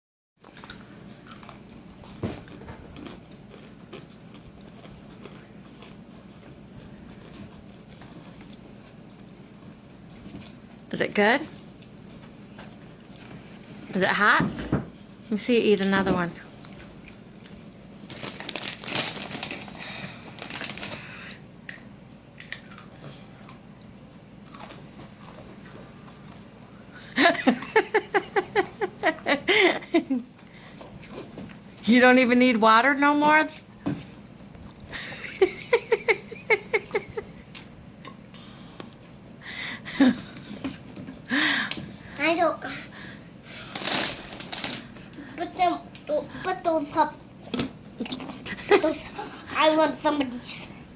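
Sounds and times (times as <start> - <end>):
child crunching chips: 0.4 - 9.0, 18.1 - 23.6, 24.4 - 25.4, 43.0 - 45.1.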